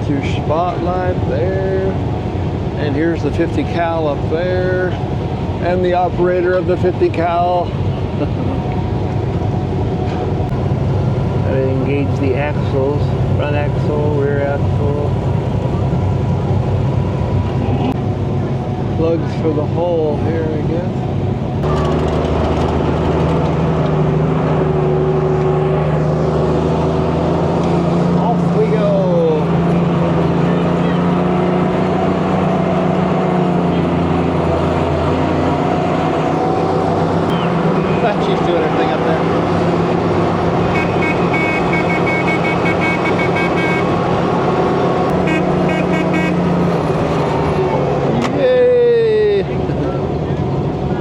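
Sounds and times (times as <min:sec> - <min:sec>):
truck engine running steadily: 0:00.0 - 0:51.0
rapid high beeping tones: 0:40.8 - 0:43.9.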